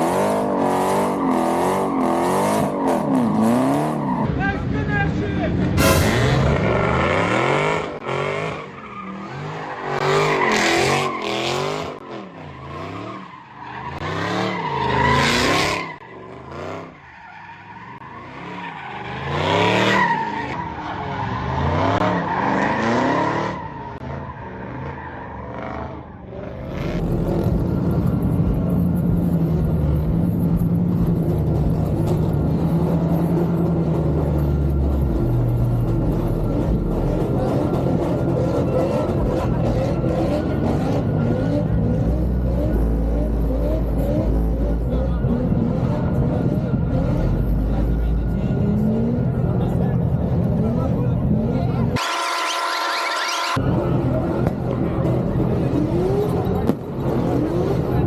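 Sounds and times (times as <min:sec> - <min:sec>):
car engine revving: 0:52.0 - 0:53.6
tyre squeal: 0:52.0 - 0:53.6.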